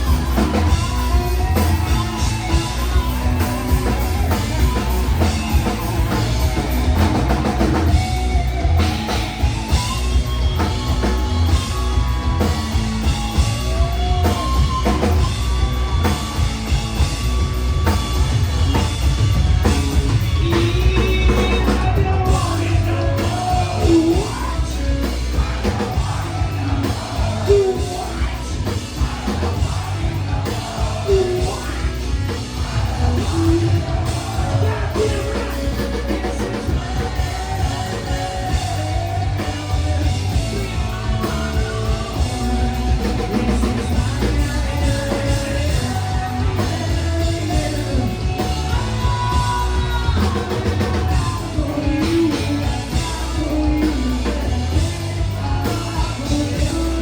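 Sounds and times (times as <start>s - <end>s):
bass guitar: 0.0s - 57.0s
drum kit: 0.0s - 57.0s
electric guitars: 0.0s - 57.0s
person singing: 20.1s - 57.0s.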